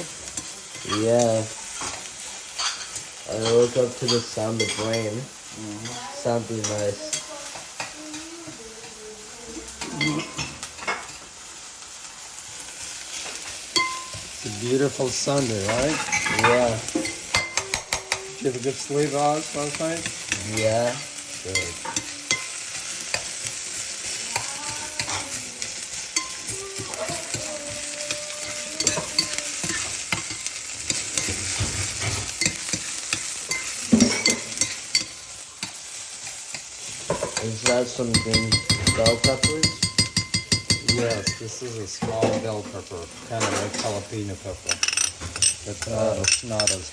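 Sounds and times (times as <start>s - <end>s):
onions sizzling in a pan: 0.0s - 46.9s
utensil clinking against pan: 13.7s - 14.2s, 15.4s - 18.2s, 21.5s - 35.8s, 36.5s - 42.6s.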